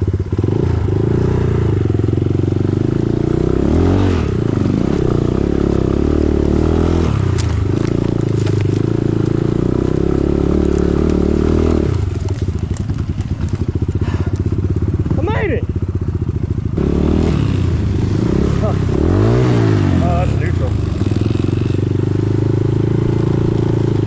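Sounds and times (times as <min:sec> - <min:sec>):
dirt bike engine revving: 0:00.3 - 0:24.0
sharp clatters: 0:07.3 - 0:09.4.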